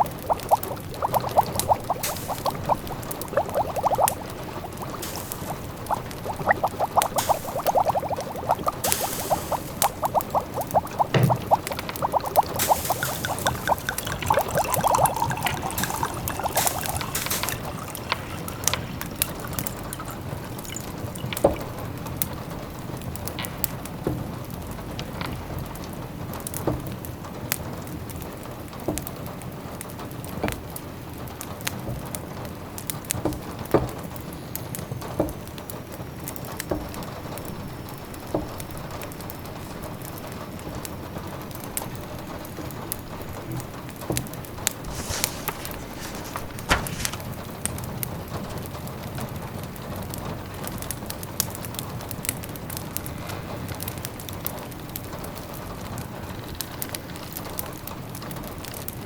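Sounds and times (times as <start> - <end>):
wood fire crackling and popping: 0.0 - 19.9, 44.6 - 47.8
rain hissing: 0.0 - 21.3, 44.7 - 47.5
bubbling liquid sounds: 0.0 - 22.2, 44.5 - 47.4.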